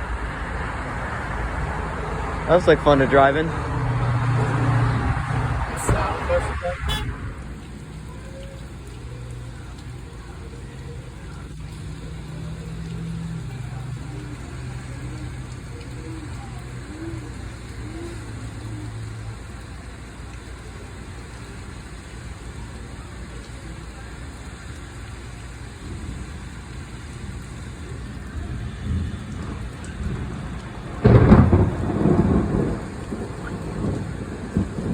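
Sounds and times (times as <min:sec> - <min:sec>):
car engine idling: 0:00.0 - 0:34.9
rain falling: 0:00.0 - 0:34.9.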